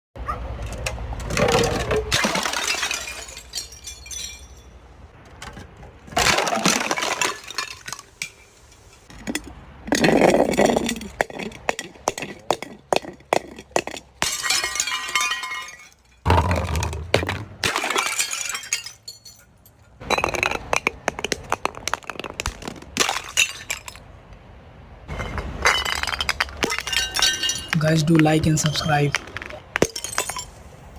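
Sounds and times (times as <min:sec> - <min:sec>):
glass shards clinking: 0:01.3 - 0:04.8, 0:14.2 - 0:16.3, 0:17.6 - 0:21.4, 0:23.0 - 0:24.1, 0:25.1 - 0:30.6
glass bottles shattering: 0:01.3 - 0:04.9, 0:06.1 - 0:24.1, 0:25.1 - 0:30.7.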